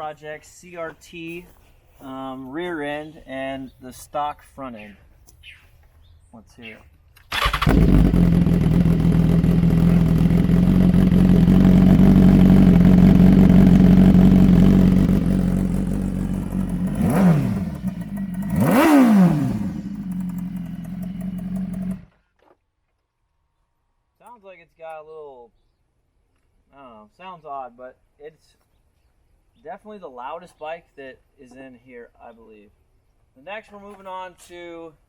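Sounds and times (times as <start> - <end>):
motorcycle engine idling and revving: 7.3 - 22.2.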